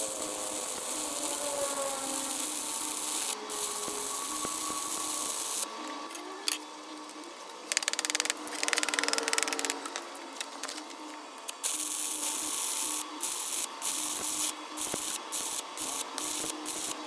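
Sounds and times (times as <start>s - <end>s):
power tools hissing: 0.0s - 6.0s, 11.6s - 17.0s.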